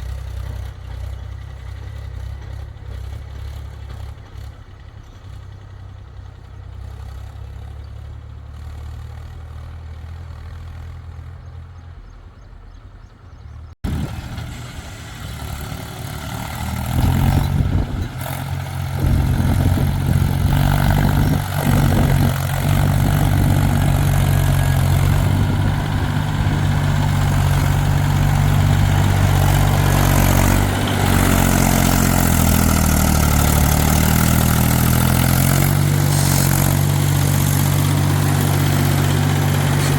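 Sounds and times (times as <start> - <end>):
heavy diesel engine running: 13.6 - 39.9.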